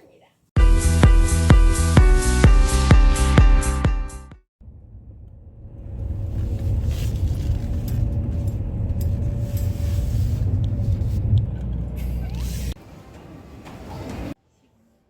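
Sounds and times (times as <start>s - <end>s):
airliner cabin rumble: 4.6s - 14.4s.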